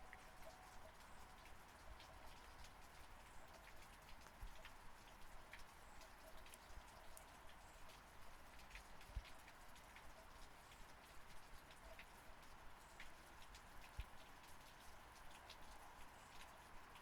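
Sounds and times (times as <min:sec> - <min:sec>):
faint steady rain: 0:00.0 - 0:17.0.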